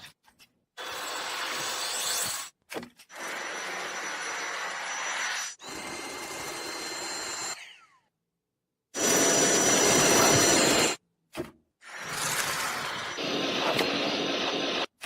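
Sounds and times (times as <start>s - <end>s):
cordless vacuum cleaner motor whining: 9.0s - 11.0s, 12.1s - 14.9s.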